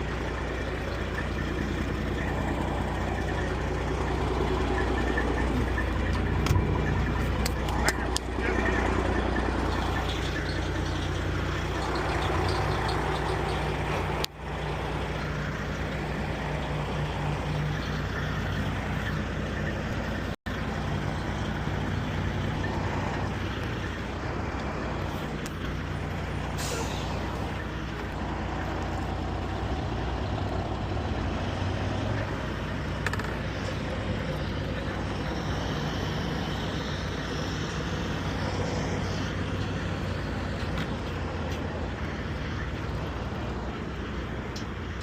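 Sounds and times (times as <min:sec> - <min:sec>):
truck engine running: 0:00.0 - 0:45.0
air hiss: 0:26.5 - 0:27.3.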